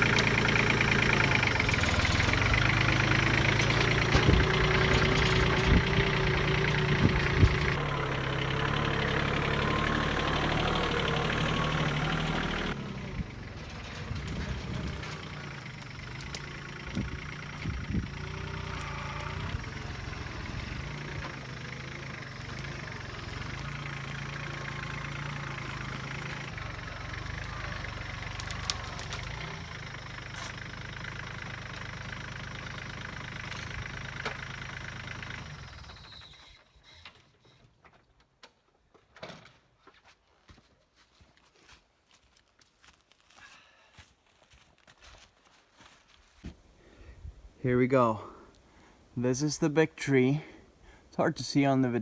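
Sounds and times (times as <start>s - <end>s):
tractor engine running: 0.0s - 36.6s.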